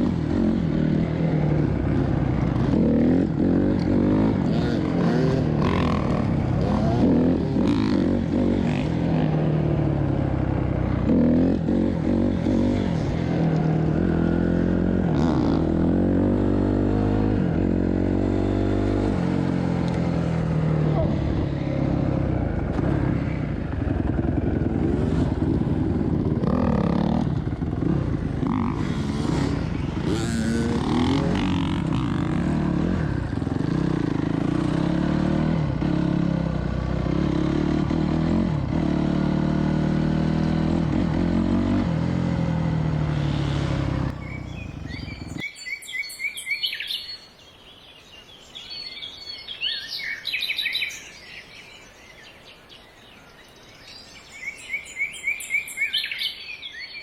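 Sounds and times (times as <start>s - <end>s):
dirt bike engine running: 0.0s - 45.4s
birds chirping: 42.8s - 57.0s.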